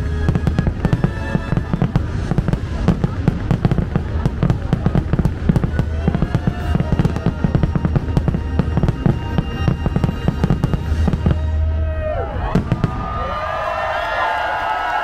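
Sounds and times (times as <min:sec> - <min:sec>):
fireworks bursts and crackling bangs: 0:00.0 - 0:11.6, 0:12.4 - 0:14.1
fireworks whistling: 0:00.0 - 0:11.7.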